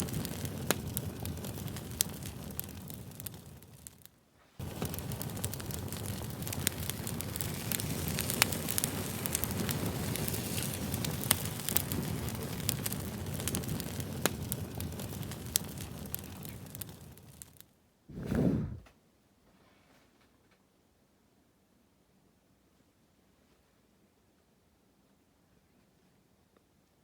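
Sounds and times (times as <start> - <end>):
wood fire crackling and popping: 0.0 - 18.8
fire low rumble: 0.0 - 18.9.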